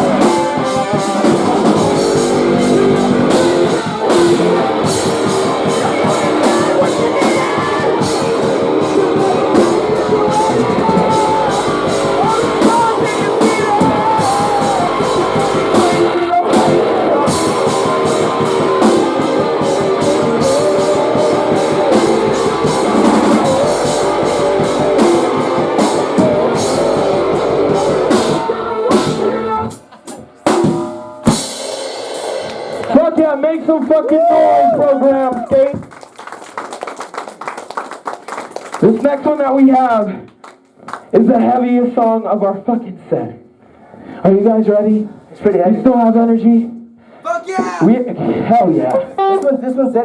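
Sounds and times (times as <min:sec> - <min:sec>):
electric guitars: 0:00.0 - 0:30.0
drum kit: 0:00.0 - 0:33.4.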